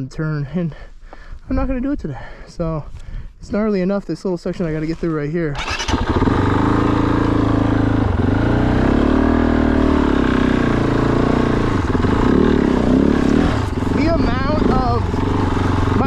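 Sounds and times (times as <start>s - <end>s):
motorbike engine revving: 5.6s - 16.0s.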